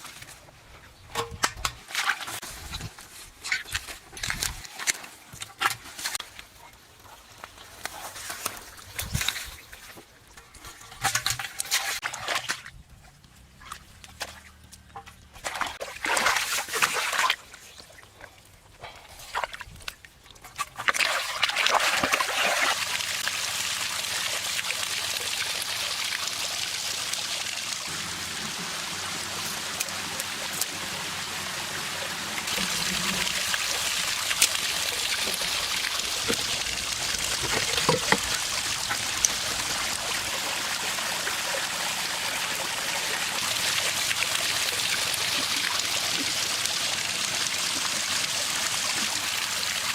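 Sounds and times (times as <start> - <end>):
water pouring and trickling: 13.5 - 49.9
water splashes: 15.3 - 18.4, 19.3 - 49.9.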